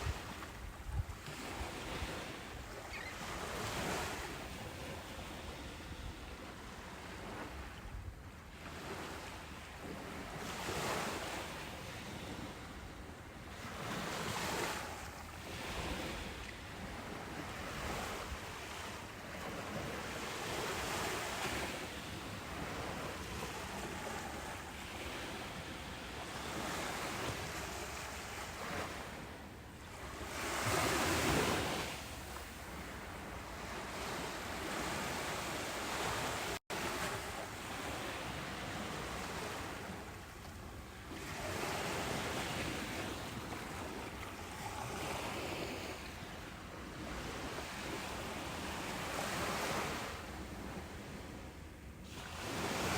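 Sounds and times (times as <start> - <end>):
ocean waves breaking on beach: 0.0 - 52.9.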